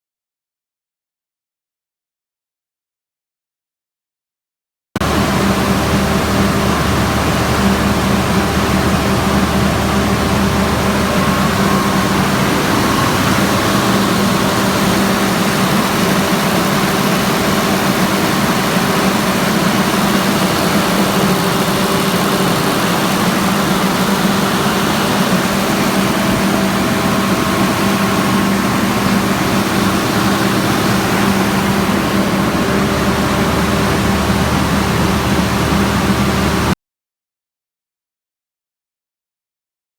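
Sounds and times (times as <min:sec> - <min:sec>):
gas engine running with hum: 0:05.0 - 0:36.7.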